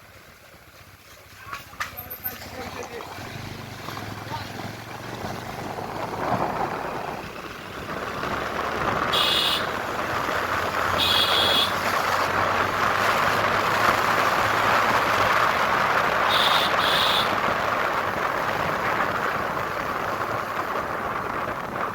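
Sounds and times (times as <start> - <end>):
motorcycle road noise: 0.0 - 21.9
wind noise: 4.4 - 21.9.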